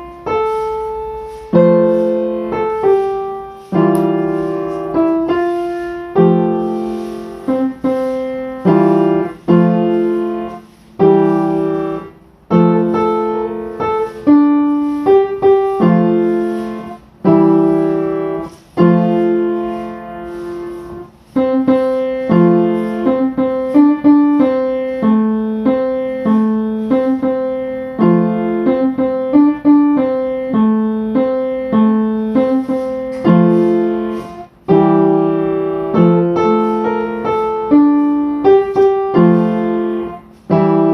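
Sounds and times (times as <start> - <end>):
slow piano music: 0.0 - 40.9.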